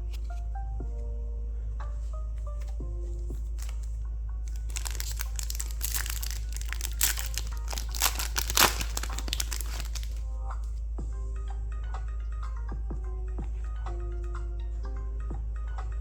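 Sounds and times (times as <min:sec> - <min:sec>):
plastic wrapper crinkling: 0:03.4 - 0:03.9, 0:04.5 - 0:10.2.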